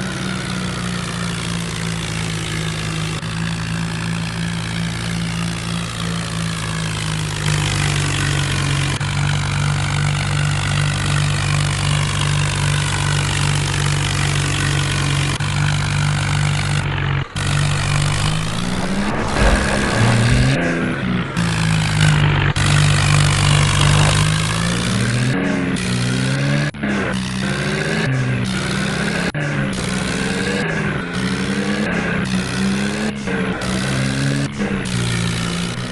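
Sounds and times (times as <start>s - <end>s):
tractor diesel engine revving: 0.0s - 35.9s.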